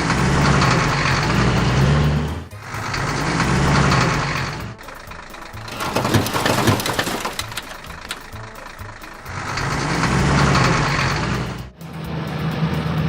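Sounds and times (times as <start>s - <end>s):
vehicle engine running: 0.0s - 13.0s
irregular clattering knocks: 3.0s - 10.9s.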